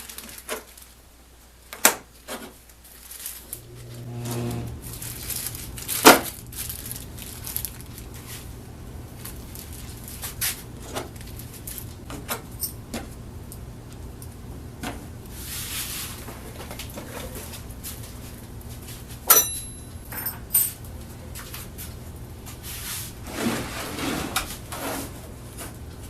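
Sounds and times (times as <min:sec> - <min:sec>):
steady low hum: 0:03.3 - 0:23.7.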